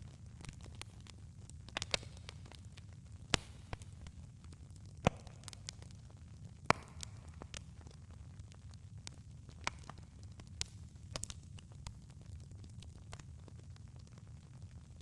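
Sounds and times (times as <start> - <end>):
campfire crackling: 0.0 - 15.0
wood popping and snapping: 1.8 - 2.2.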